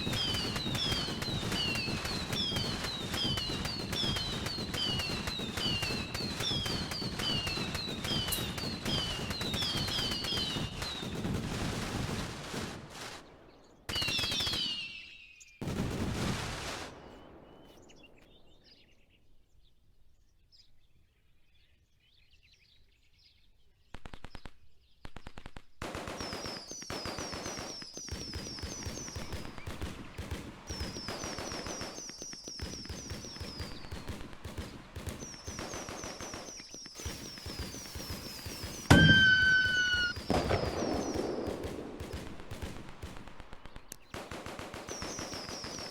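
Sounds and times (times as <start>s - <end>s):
high whistling chirps: 0.0s - 11.0s, 36.4s - 41.2s
fireworks crackling: 0.0s - 18.0s, 25.2s - 45.9s.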